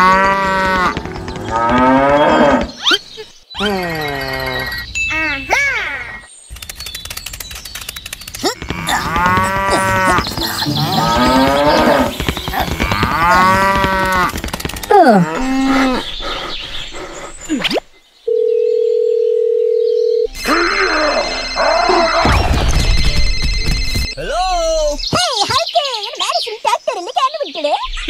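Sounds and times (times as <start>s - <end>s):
cows mooing: 0.0s - 2.8s, 8.6s - 16.1s
telephone dial tone: 18.3s - 20.3s.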